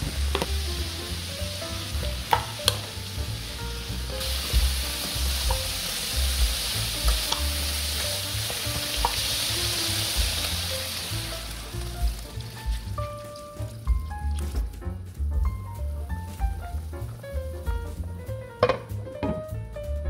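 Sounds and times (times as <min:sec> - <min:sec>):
food sizzling in frying pan: 0:00.0 - 0:13.9
wooden spoon clicking on pan: 0:02.3 - 0:02.9.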